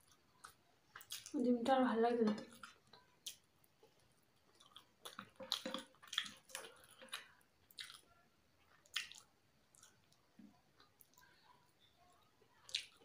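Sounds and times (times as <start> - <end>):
person chewing: 0.0 - 1.4, 2.3 - 11.4, 12.5 - 13.0
wet mouth clicks and smacks: 4.6 - 8.0, 8.8 - 10.0.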